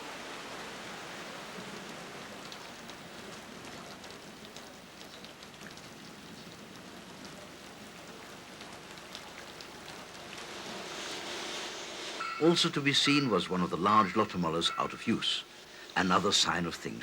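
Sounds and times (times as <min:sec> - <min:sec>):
sharp drips and patters: 0:00.0 - 0:17.0
steady rain falling: 0:00.0 - 0:17.0.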